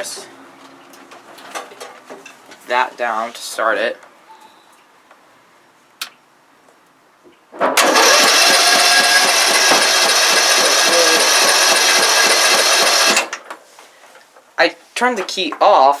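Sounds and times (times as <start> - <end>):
small engine running loudly: 7.8 - 13.3.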